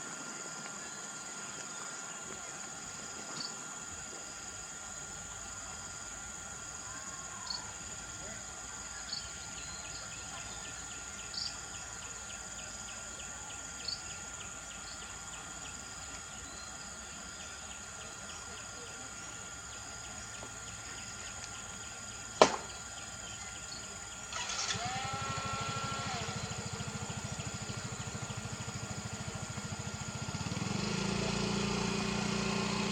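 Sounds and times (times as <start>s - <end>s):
insects stridulating: 0.0s - 32.9s
small engine running: 0.0s - 32.9s
sharp click: 22.4s - 22.7s.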